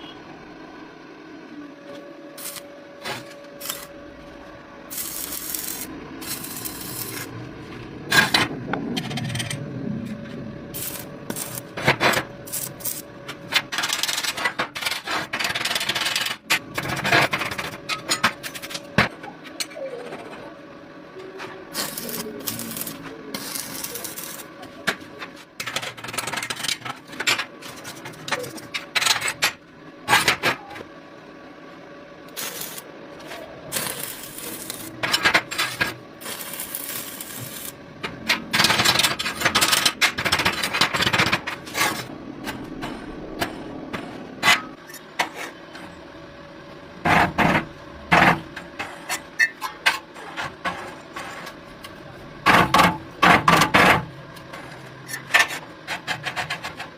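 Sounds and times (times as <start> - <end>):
faint steady hum: 0.0 - 56.9
metal scraping and rubbing: 32.4 - 45.8.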